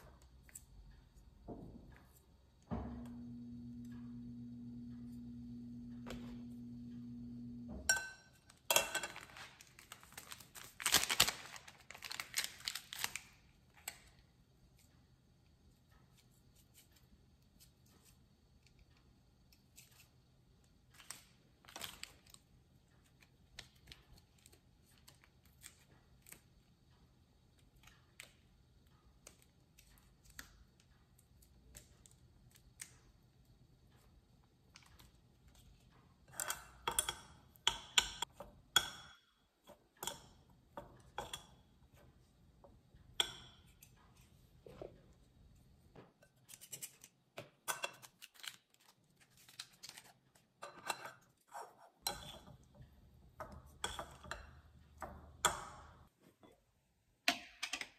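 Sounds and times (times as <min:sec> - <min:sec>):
sachets crinkling and tearing: 0:09.1 - 0:13.4, 0:48.0 - 0:50.3.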